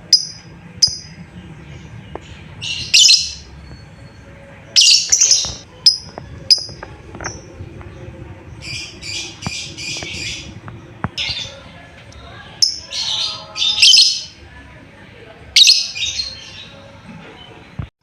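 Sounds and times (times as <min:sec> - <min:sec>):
bird screechy chirps: 0:02.6 - 0:03.5.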